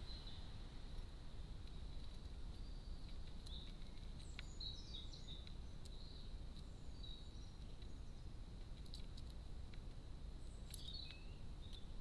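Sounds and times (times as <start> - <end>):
faint songbird chirps: 0.0 - 12.0
light clicks: 10.6 - 11.9.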